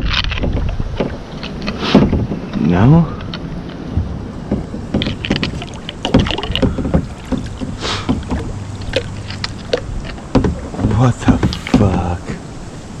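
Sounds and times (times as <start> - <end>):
rustles and knocks of handling: 0.0 - 12.4
wind rumbling on microphone: 0.0 - 13.0.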